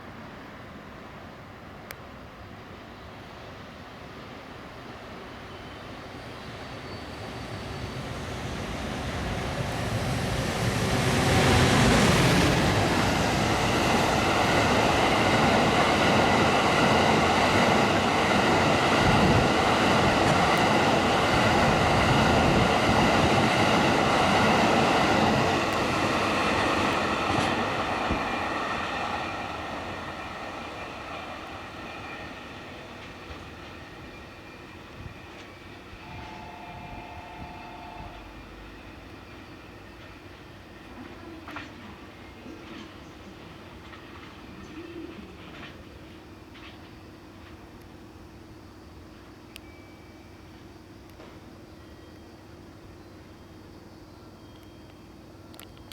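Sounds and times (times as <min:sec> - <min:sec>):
rumble of train wagon wheels: 0:00.0 - 0:55.9
high ringing tones: 0:34.0 - 0:40.1, 0:49.5 - 0:50.6.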